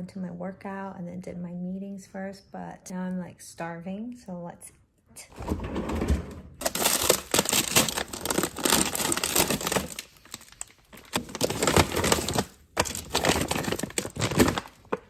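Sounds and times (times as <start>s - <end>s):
plastic packaging crinkling: 6.6s - 15.0s.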